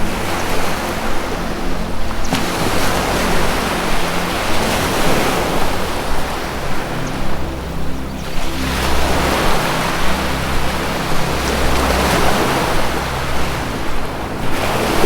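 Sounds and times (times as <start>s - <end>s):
ocean waves washing in: 0.0s - 15.0s
soft low music tones: 0.0s - 15.0s.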